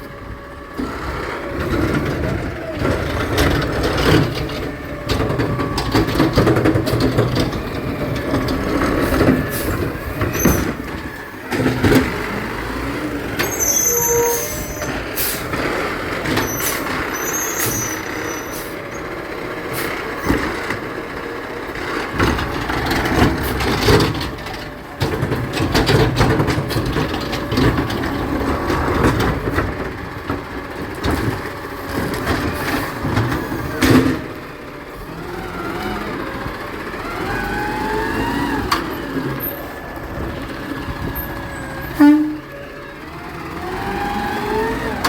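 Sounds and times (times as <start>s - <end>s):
garbage truck engine running: 0.0s - 45.0s
knocks and clanks: 1.6s - 13.6s, 21.9s - 34.4s
high squeals: 13.4s - 15.0s
air brakes hissing: 13.4s - 15.5s, 16.5s - 18.8s.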